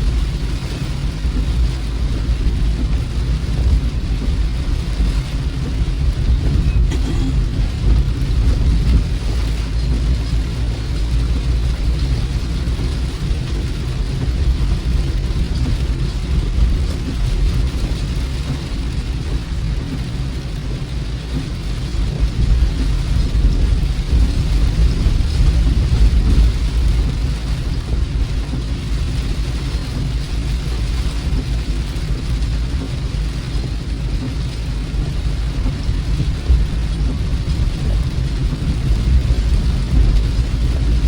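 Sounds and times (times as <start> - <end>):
car road and engine rumble: 0.0 - 41.0
rain hissing: 0.0 - 41.0.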